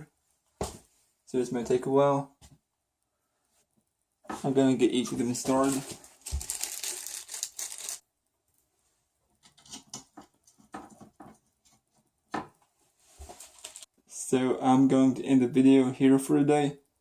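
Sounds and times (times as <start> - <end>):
rustling: 4.4 - 8.0, 12.6 - 13.9.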